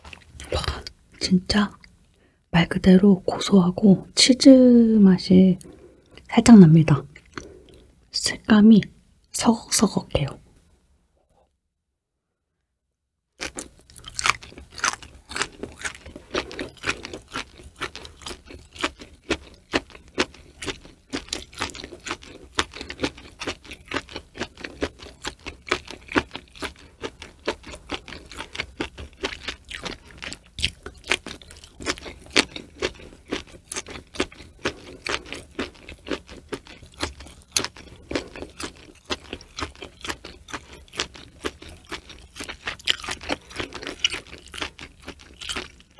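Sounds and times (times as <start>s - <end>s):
crisp crunching chewing: 7.1s - 7.9s, 13.4s - 45.9s.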